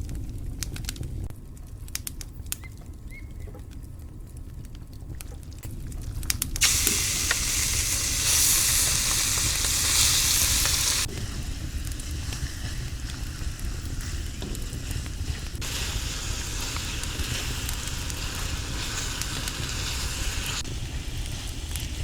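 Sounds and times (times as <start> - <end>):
food sizzling on griddle: 6.6 - 22.0.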